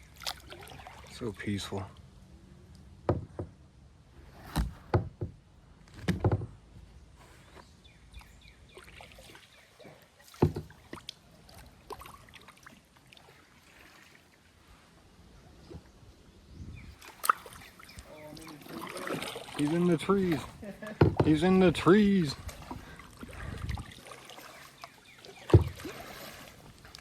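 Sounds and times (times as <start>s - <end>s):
water dripping and splashing: 0.0s - 1.2s, 8.7s - 14.4s, 17.0s - 27.0s
paddle knocking against hull: 3.0s - 3.6s, 4.6s - 5.4s, 6.0s - 6.6s, 10.3s - 11.1s, 17.2s - 24.5s, 25.3s - 26.5s
kayak paddle strokes: 7.2s - 16.0s, 17.0s - 27.0s.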